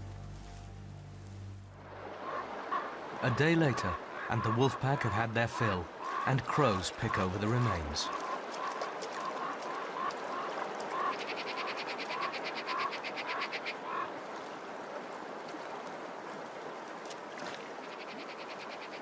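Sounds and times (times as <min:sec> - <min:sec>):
river water rushing: 0:01.7 - 0:12.3, 0:13.7 - 0:18.0.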